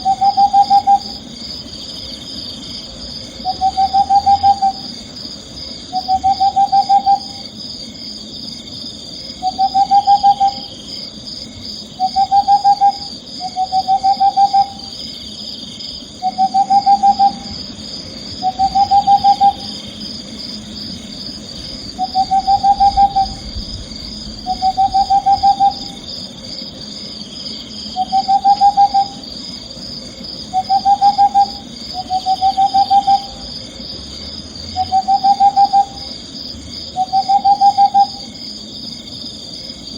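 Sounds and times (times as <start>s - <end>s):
owl trilled hoots: 0.0s - 1.3s, 3.3s - 5.0s, 5.9s - 7.6s, 9.4s - 10.9s, 12.0s - 15.1s, 16.0s - 20.0s, 21.4s - 26.4s, 27.8s - 29.7s, 30.4s - 33.7s, 34.7s - 36.2s, 36.9s - 38.3s
high-pitched chirring: 18.4s - 20.0s, 21.6s - 26.6s.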